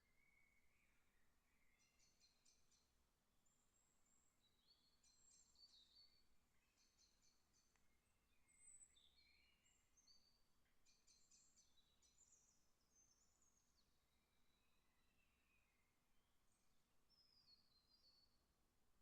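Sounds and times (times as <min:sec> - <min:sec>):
small birds chirping and trilling: 0:03.5 - 0:15.8.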